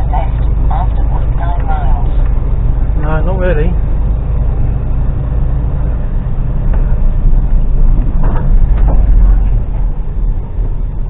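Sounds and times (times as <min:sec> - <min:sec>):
truck diesel engine droning: 0:00.0 - 0:11.0.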